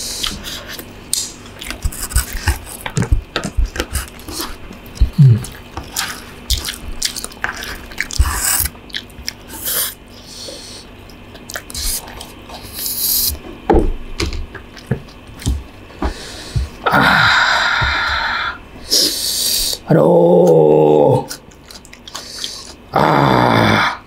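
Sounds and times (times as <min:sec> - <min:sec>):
wet chewing and smacking: 0:00.2 - 0:10.0, 0:10.9 - 0:12.8, 0:14.2 - 0:15.9, 0:21.3 - 0:22.9
low falling hum: 0:13.3 - 0:19.0.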